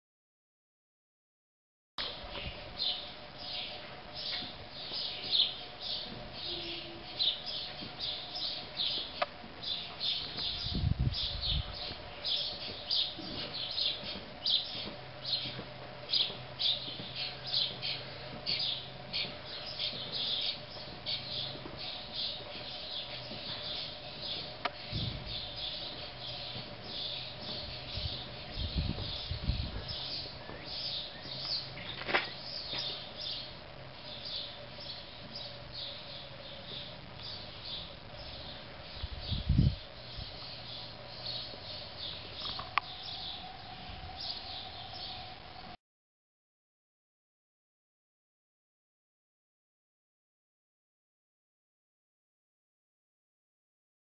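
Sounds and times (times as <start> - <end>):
small birds chirping: 2.1 - 45.8
low rumbles: 23.2 - 31.9.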